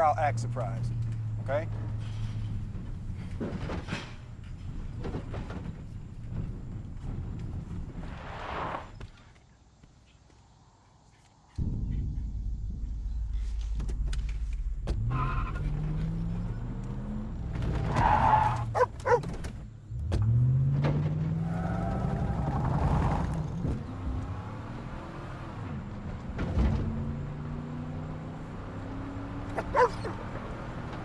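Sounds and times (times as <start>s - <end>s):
low road rumble: 0.0s - 31.0s
car engine revving: 14.8s - 31.0s.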